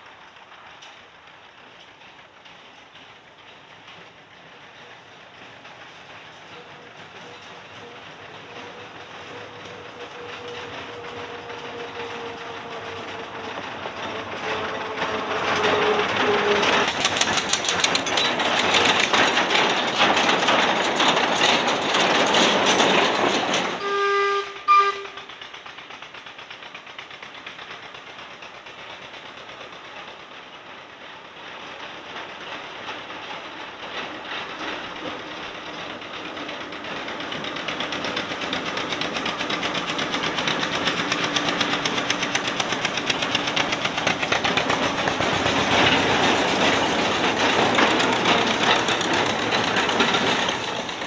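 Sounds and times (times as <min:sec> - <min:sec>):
diesel locomotive engine: 0:00.0 - 0:51.0
wagons rattling over rail joints: 0:00.0 - 0:51.0
short horn: 0:23.8 - 0:25.2.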